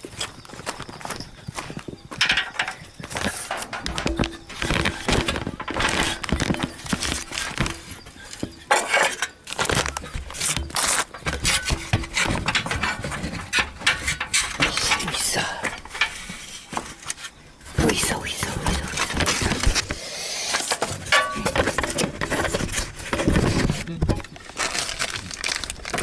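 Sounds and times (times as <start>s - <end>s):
ceramic roof tiles clacking: 0.0s - 26.0s.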